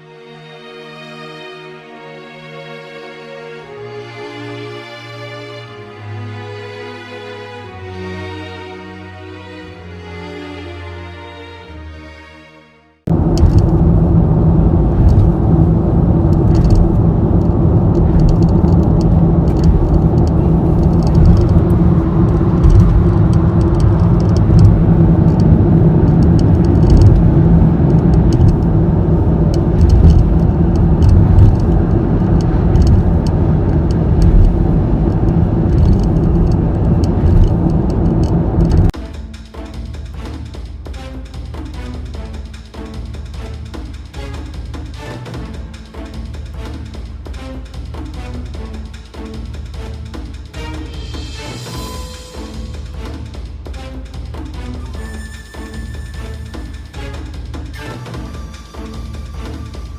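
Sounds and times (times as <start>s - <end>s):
road and wind noise in car: 13.1s - 39.0s, 56.0s - 59.9s
steady droning tone: 13.1s - 39.0s.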